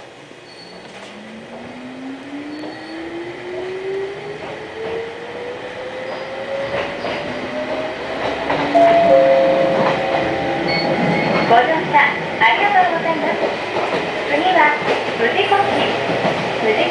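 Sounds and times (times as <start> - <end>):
electric train motor whine: 0.3 - 11.5.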